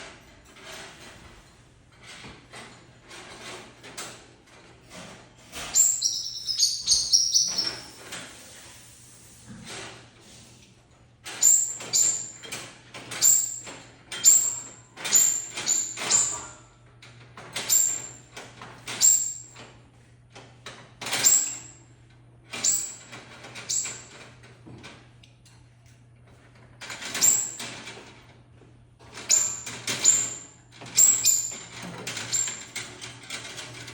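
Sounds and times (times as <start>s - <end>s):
bird chirping sharply: 5.8s - 7.9s.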